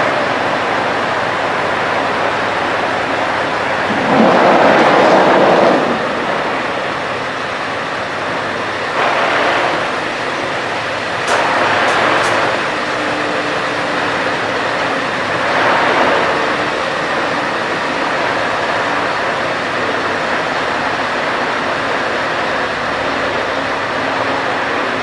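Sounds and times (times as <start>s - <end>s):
road noise: 0.7s - 25.0s
trucks diesel engines passing: 2.4s - 21.8s
sharp clicks: 11.2s - 12.9s.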